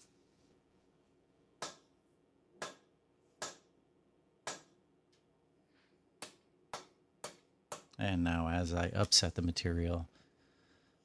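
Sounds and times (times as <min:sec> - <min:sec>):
hammer striking steel bar: 0:02.6 - 0:03.7, 0:04.5 - 0:04.7.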